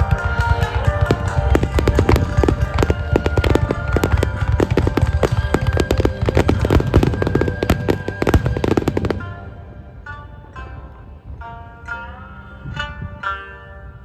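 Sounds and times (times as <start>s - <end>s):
fireworks bursting and crackling: 0.0s - 9.6s
music playing: 0.0s - 14.0s.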